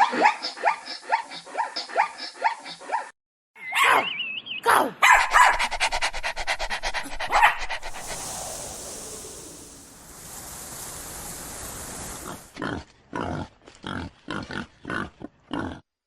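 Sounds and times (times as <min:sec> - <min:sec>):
dog yelping: 0:04.8 - 0:05.9.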